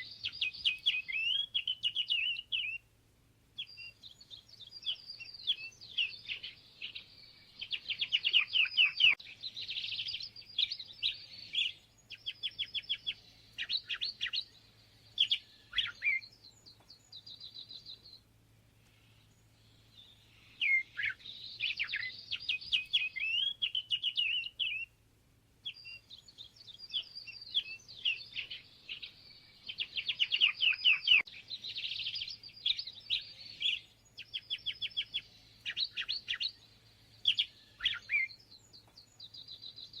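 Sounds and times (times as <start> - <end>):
songbird singing: 0.0 - 40.0
faint low hum: 9.2 - 23.0.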